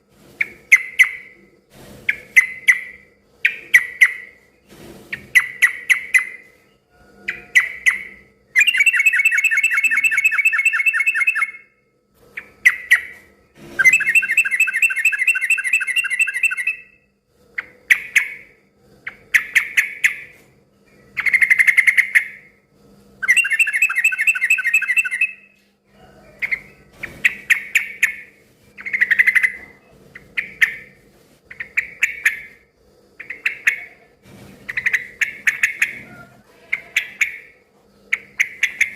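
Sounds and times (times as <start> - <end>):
bird chirping phrases: 5.3 - 11.6, 13.8 - 17.0, 23.2 - 25.5.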